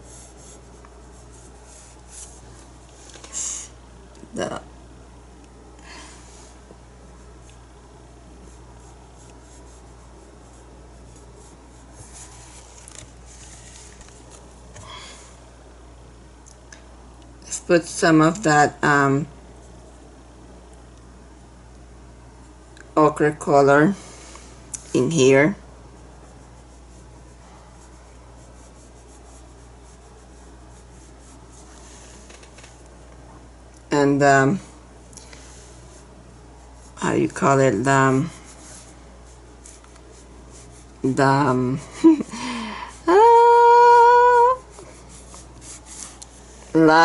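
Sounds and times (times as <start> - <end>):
paintbrush scratching on canvas: 0.0 - 3.4, 8.3 - 14.6, 25.0 - 32.8, 35.4 - 42.2, 44.4 - 47.0
steady low hum: 0.0 - 47.0.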